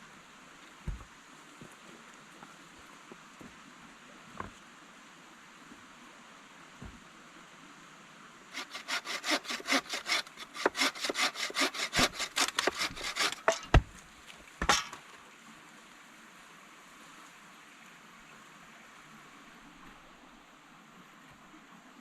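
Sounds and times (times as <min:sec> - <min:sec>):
hand saw cutting wood: 0:08.6 - 0:13.9, 0:14.6 - 0:15.0.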